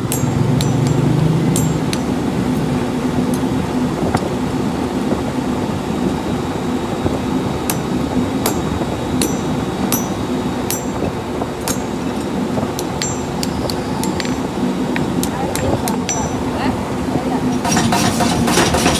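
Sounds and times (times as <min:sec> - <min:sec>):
hammer taps on steel: 0:00.0 - 0:02.1, 0:07.7 - 0:12.2
workshop machine hum: 0:00.0 - 0:18.9.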